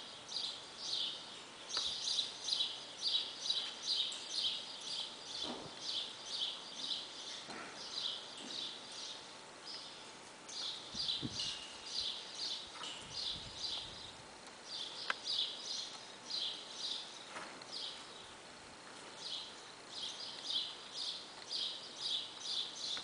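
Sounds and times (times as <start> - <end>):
small birds chirping: 0.0 - 23.0
horse hooves walking on sand: 9.7 - 23.0.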